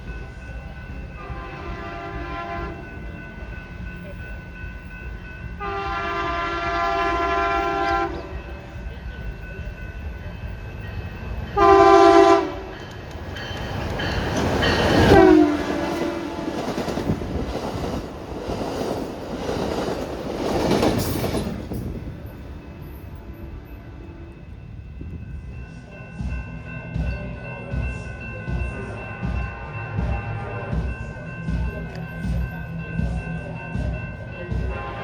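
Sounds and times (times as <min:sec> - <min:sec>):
train wheels clattering on rails: 0:00.0 - 0:23.2
train horn: 0:01.2 - 0:03.0, 0:05.6 - 0:08.5, 0:11.6 - 0:12.8, 0:15.0 - 0:16.6, 0:34.7 - 0:35.0.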